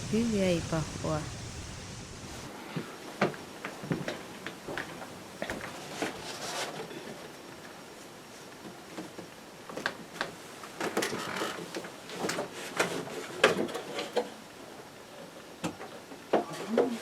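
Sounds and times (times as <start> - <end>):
light rustling of objects: 2.3 - 14.4.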